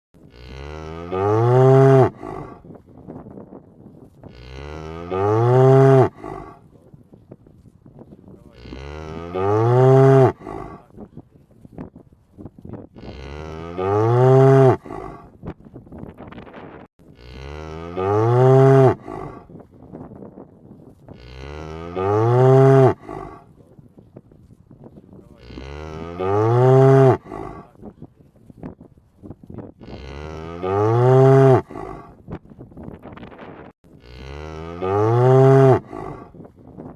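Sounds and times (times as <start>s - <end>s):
cow mooing: 0.2s - 2.6s, 4.3s - 6.6s, 8.5s - 10.9s, 13.0s - 15.3s, 17.2s - 19.5s, 21.2s - 23.5s, 25.4s - 27.7s, 29.8s - 32.2s, 34.0s - 36.4s.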